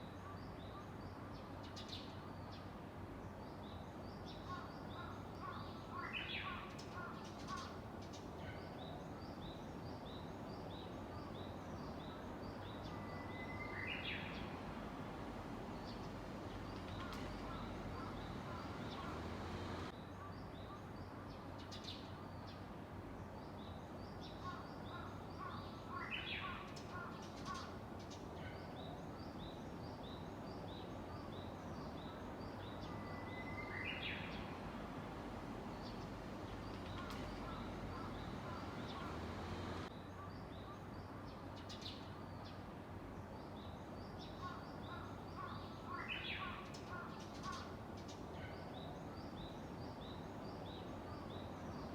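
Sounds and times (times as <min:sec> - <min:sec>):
constant background noise: 0:00.0 - 0:51.9
warbler singing: 0:03.5 - 0:22.6, 0:23.4 - 0:42.6.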